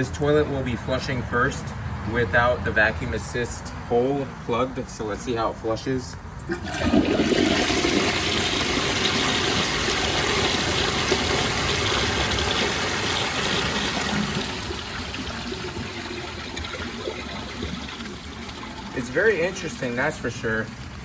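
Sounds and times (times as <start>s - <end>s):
toilet flushing water rush: 6.5s - 21.0s.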